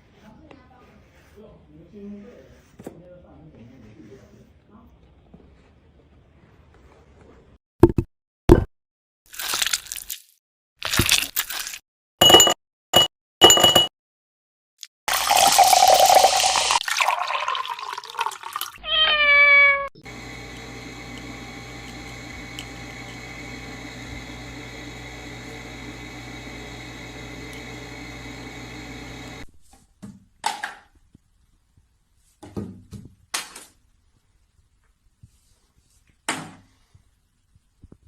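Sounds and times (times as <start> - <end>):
cat meowing: 18.8 - 19.9.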